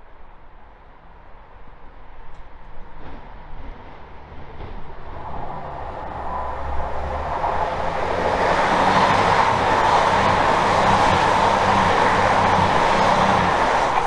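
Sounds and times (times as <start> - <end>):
train wheels on rails: 2.2 - 14.0
diesel engines humming: 3.1 - 14.0.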